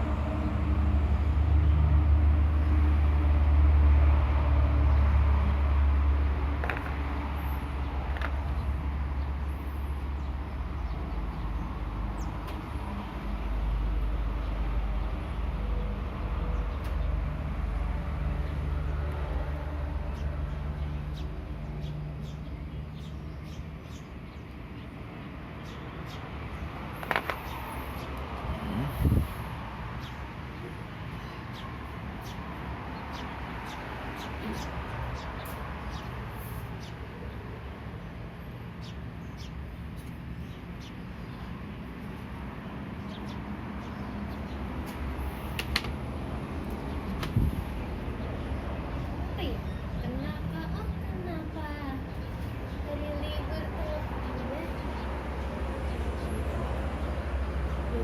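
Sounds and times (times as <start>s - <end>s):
low engine-like hum: 0.0s - 58.0s
small birds chirping: 6.5s - 12.8s, 20.0s - 58.0s.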